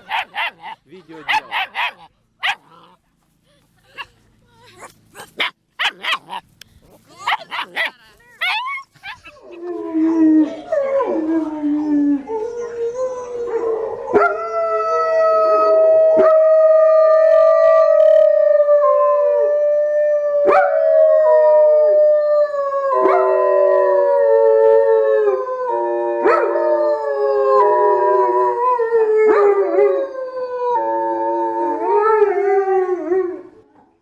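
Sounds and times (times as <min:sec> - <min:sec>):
dog yelps: 0:00.0 - 0:03.0, 0:03.8 - 0:06.4, 0:07.1 - 0:09.4.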